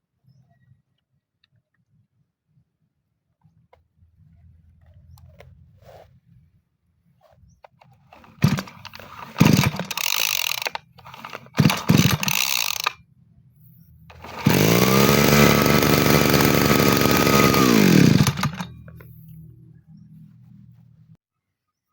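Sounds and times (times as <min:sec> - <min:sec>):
brush cutter engine revving: 0:08.2 - 0:13.0, 0:14.1 - 0:19.1.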